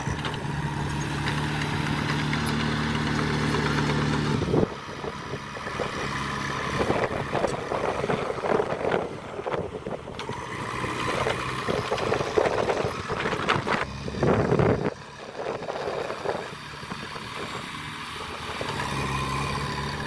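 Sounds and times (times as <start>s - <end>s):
machinery knocks and clanks: 0.0s - 4.5s
diesel engine rough noise: 0.0s - 20.0s.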